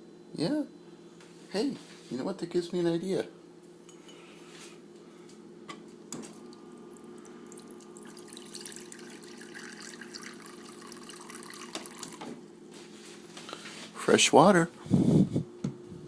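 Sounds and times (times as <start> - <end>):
water running into a container: 6.4 - 12.3.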